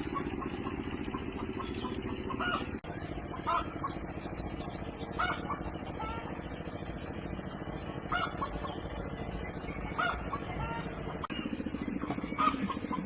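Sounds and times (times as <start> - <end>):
poultry calling: 0.0 - 4.0, 5.1 - 6.3, 8.1 - 8.8, 9.9 - 11.1, 12.0 - 13.0.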